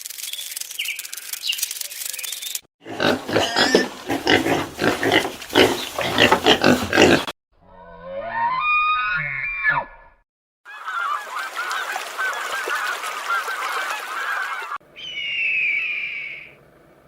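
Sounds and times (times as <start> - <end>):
scratchy rasping noise with ticks: 0.0 - 7.3
animal grunting: 2.8 - 7.4.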